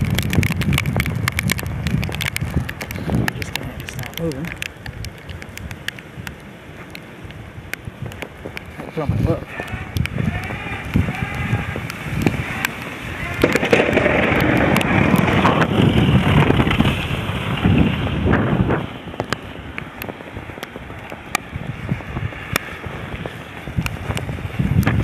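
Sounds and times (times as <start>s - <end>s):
faint clicks: 0.0s - 8.9s
wind buffeting microphone: 0.0s - 25.0s.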